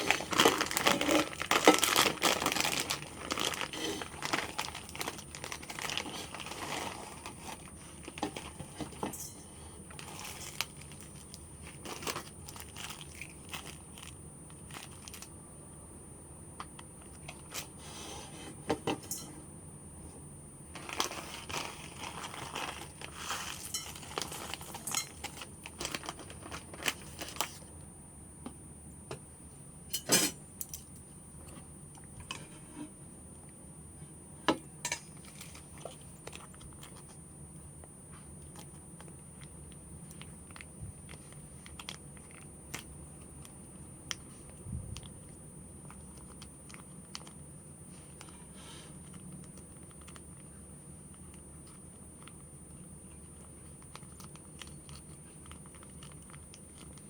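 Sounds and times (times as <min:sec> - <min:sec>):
packaging crinkling and rustling: 0:00.0 - 0:09.2, 0:09.9 - 0:15.4, 0:20.7 - 0:27.8, 0:35.1 - 0:37.2, 0:37.8 - 0:57.0.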